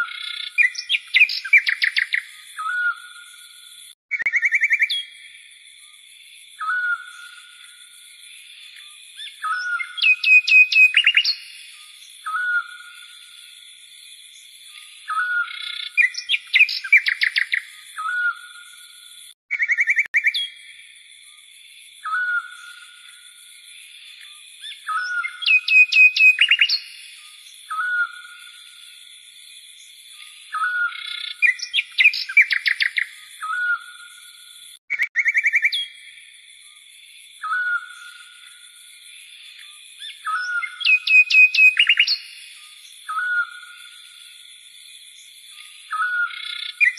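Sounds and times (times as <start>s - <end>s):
rapid bird chirps: 0.0s - 5.4s, 8.6s - 13.6s, 14.3s - 20.7s, 24.1s - 28.8s, 29.8s - 36.2s, 39.5s - 44.3s, 45.1s - 46.9s
songbird singing: 0.0s - 46.9s.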